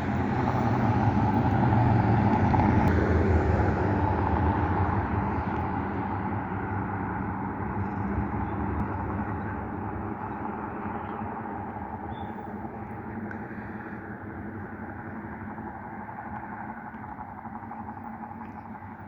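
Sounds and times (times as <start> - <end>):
car road noise: 0.0 - 19.0.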